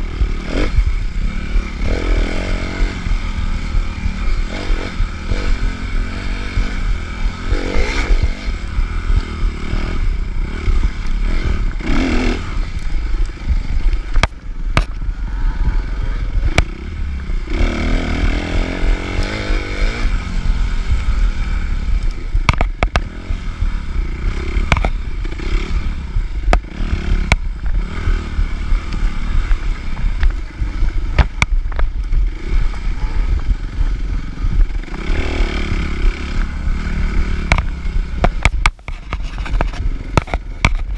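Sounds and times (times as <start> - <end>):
dirt bike engine revving: 0.0 - 40.9
knocks and clatter from bike: 13.4 - 15.1, 16.4 - 16.8, 22.0 - 23.4, 24.4 - 25.6, 26.4 - 27.8, 29.0 - 35.2, 37.2 - 40.9.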